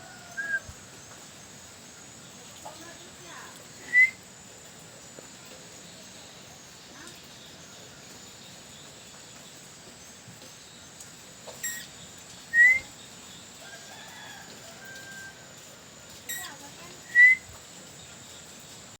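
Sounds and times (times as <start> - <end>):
faint whistled bird notes: 0.0 - 0.8, 3.8 - 4.2, 11.6 - 11.9, 12.5 - 13.1, 16.3 - 17.6
parakeet rising whistle: 0.4 - 0.7, 3.9 - 4.2, 11.6 - 11.8, 12.6 - 12.9, 17.1 - 17.5.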